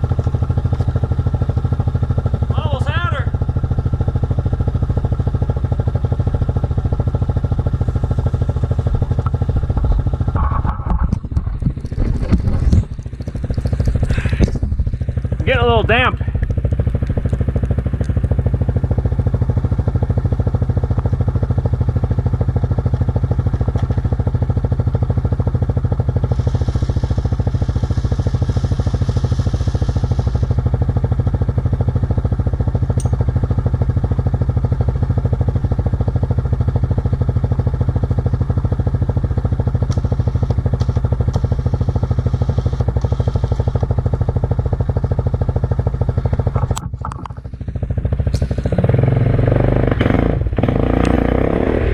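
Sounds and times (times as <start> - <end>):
atv engine running: 0.0 - 51.9
hiss: 26.1 - 30.8, 41.3 - 43.8.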